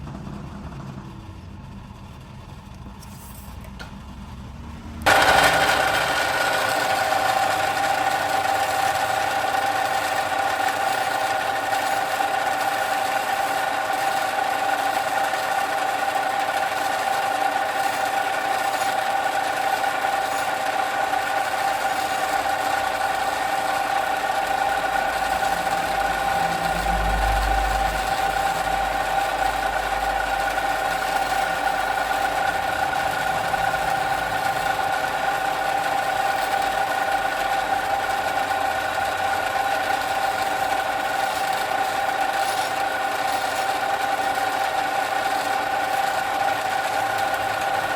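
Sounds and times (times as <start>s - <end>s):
power tool motor running: 5.0s - 47.9s.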